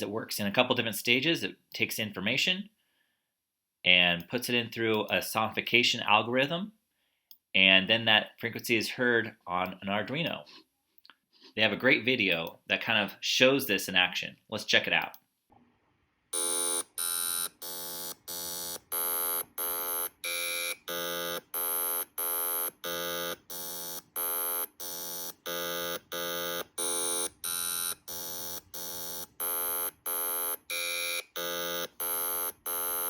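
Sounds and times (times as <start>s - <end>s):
buzzer beeping: 16.4s - 33.0s.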